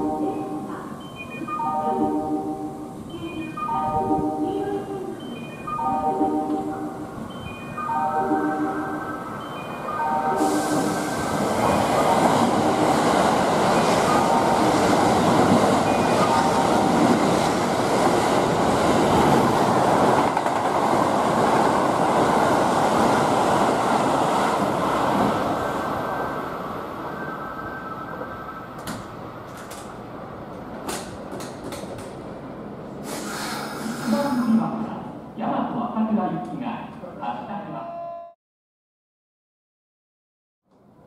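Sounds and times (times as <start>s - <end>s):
train wheels rushing on rail: 10.4s - 27.2s, 28.6s - 34.5s.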